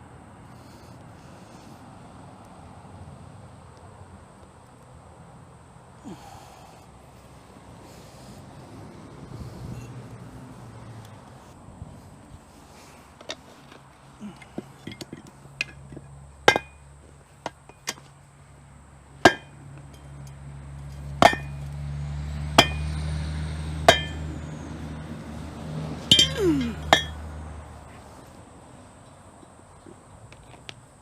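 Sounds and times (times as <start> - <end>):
metal knocks and clinks: 14.4 - 16.8, 20.9 - 21.6, 23.9 - 24.2, 26.1 - 27.2.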